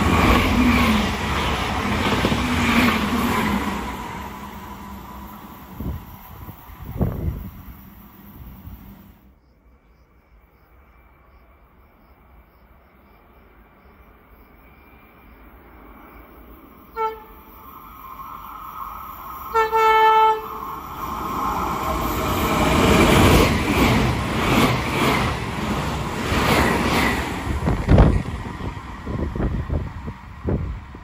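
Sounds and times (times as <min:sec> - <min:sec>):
train rumble and rail noise: 0:00.0 - 0:31.0
train horn: 0:16.9 - 0:17.6, 0:19.5 - 0:20.8.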